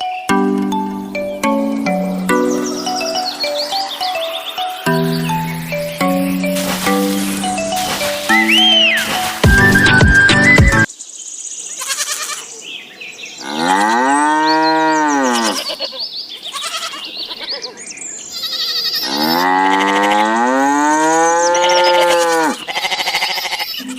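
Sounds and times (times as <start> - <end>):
cow mooing: 13.4 - 15.7, 19.0 - 23.6.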